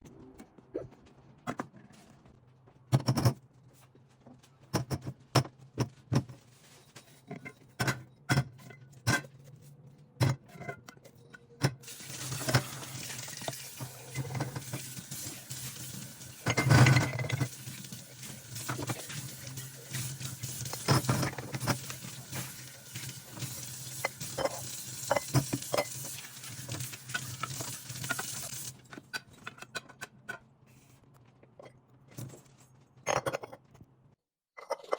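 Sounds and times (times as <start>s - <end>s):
tap running water into sink: 11.9s - 28.7s
glass and dishes clinking: 16.4s - 17.5s.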